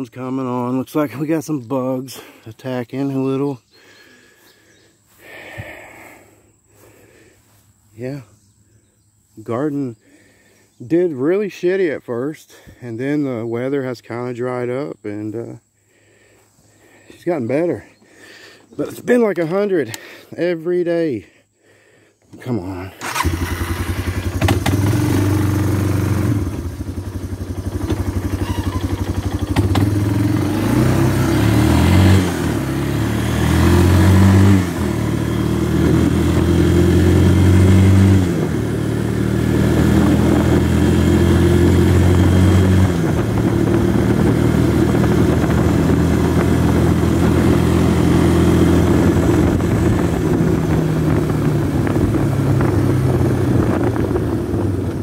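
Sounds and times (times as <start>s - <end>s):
atv engine running: 23.0s - 55.0s.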